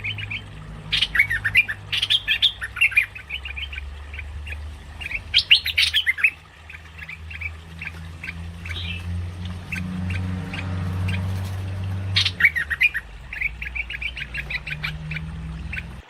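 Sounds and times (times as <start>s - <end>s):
bird chattering calls: 0.0s - 16.0s
steady low hum: 0.0s - 16.0s.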